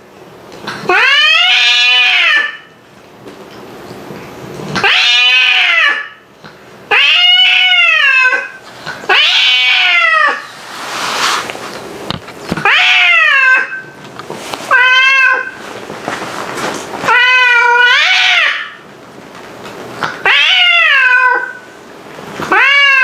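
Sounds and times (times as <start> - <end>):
cats yowling: 0.8 - 2.7, 4.8 - 6.2, 6.9 - 10.5, 12.6 - 14.0, 14.7 - 15.6, 17.0 - 18.8, 20.1 - 21.7, 22.4 - 23.0.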